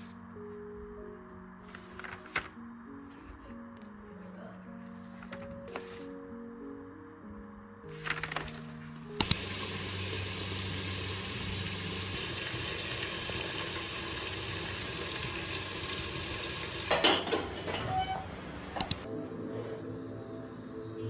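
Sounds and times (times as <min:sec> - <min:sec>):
food sizzling in a pan: 0:09.4 - 0:17.1
utensil clattering against pan: 0:16.9 - 0:18.3.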